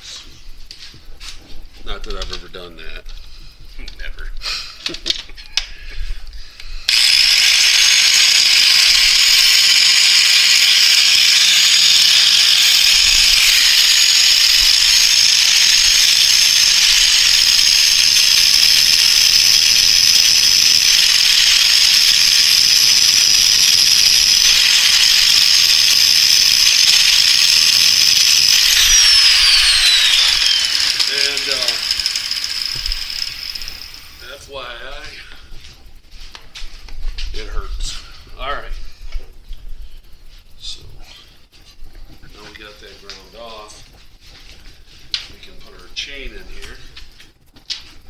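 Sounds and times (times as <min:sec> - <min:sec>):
power grinder grinding metal: 0:06.9 - 0:34.4.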